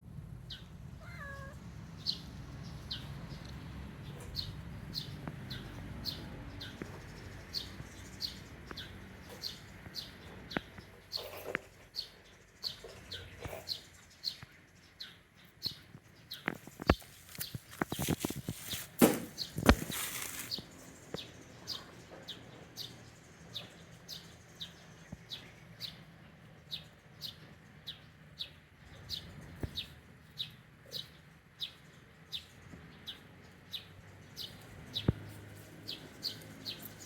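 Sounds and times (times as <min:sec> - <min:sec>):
cat meowing: 0:01.0 - 0:01.6.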